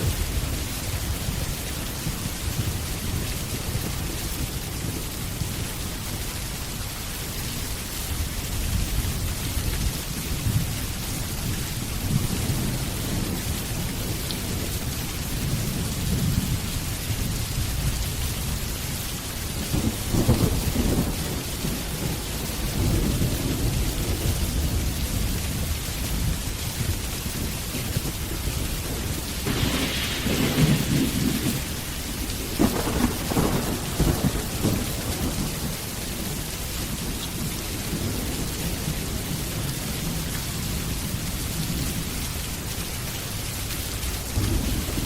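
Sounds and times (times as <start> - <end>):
thunder rumbling: 0.0 - 5.6, 19.4 - 42.1, 44.2 - 45.0
rain hissing: 0.0 - 45.0.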